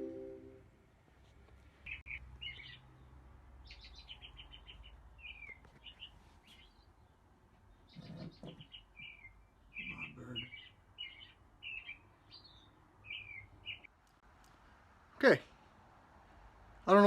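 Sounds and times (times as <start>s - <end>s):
birds chirping faintly: 1.7s - 13.9s.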